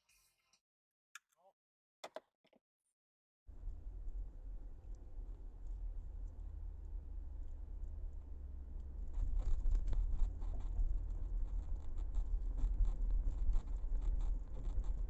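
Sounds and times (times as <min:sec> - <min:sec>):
car road rumble: 0:03.5 - 0:15.0
light ticking and scratching: 0:03.6 - 0:15.0.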